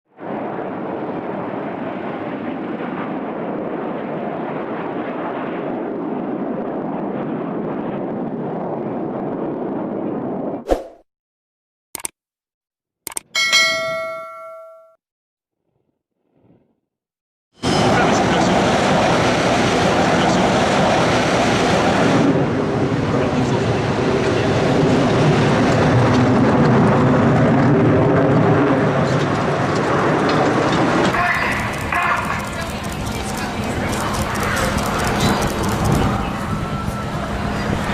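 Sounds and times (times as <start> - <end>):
jet aircraft roar: 0.2 - 10.6, 17.6 - 37.9
sharp click: 12.0 - 12.2, 13.1 - 13.3.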